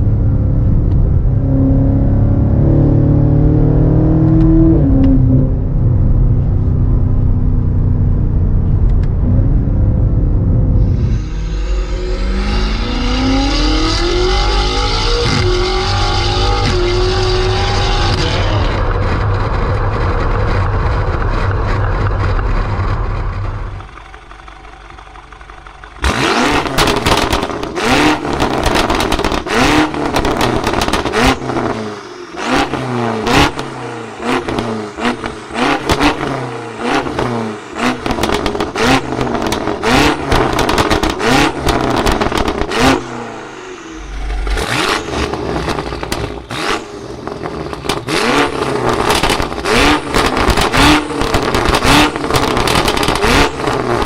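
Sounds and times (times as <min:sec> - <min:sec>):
car engine accelerating and revving: 0:00.0 - 0:54.0
exhaust pops and crackles: 0:15.3 - 0:31.8, 0:34.4 - 0:36.4, 0:37.0 - 0:43.0, 0:44.1 - 0:54.0.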